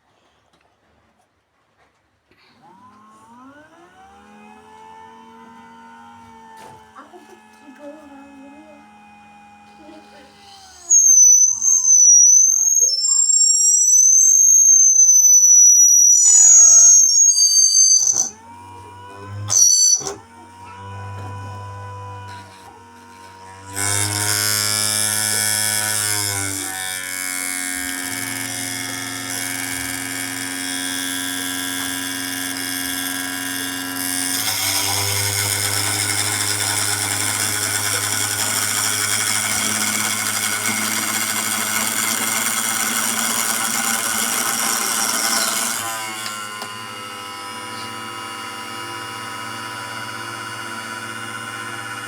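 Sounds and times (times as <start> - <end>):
small electric motor humming: 2.6 - 52.0
lathe tool cutting rasping hiss: 10.4 - 18.4, 19.5 - 20.2, 23.7 - 52.0.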